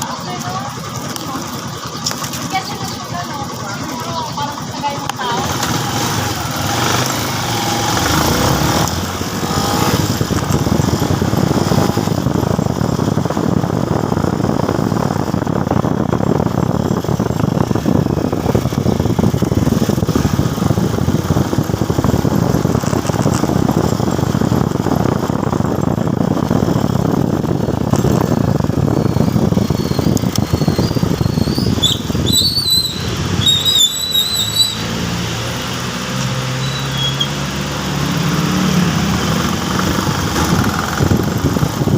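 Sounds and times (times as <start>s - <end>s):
motorcycle engine rumble: 0.0s - 41.9s
high-pitched squeal: 28.7s - 37.6s.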